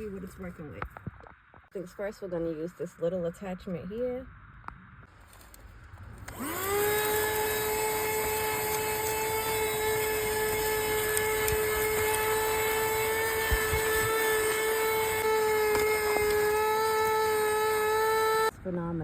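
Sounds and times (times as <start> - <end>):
handheld vacuum motor whine: 6.2 - 18.5.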